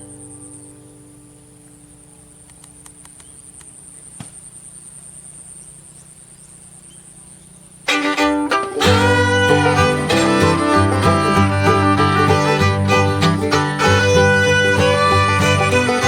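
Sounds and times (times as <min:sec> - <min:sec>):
insects trilling: 0:00.0 - 0:16.0
faint clicks: 0:02.4 - 0:04.4.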